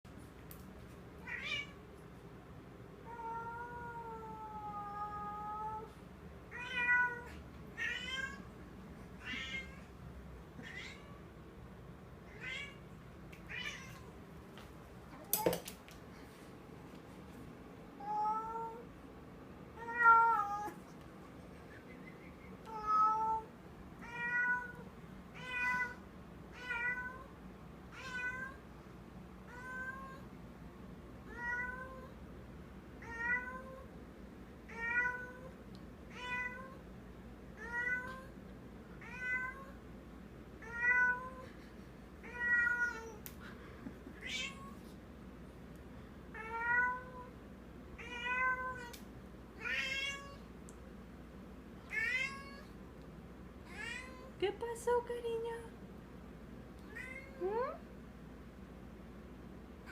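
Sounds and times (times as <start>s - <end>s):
cat meowing: 10.6s - 11.2s, 22.7s - 24.8s, 40.6s - 41.4s, 42.2s - 43.2s, 49.6s - 50.4s, 51.9s - 52.7s, 53.7s - 54.3s.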